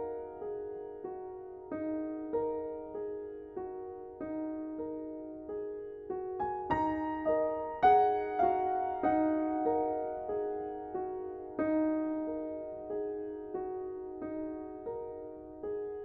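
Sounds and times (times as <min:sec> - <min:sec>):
slow solo piano piece: 0:00.0 - 0:16.0.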